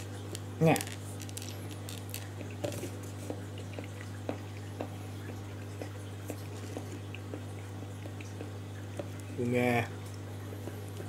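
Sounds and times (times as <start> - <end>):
steady low hum: 0.0 - 11.0
person chewing with wet mouth clicks: 3.2 - 9.2.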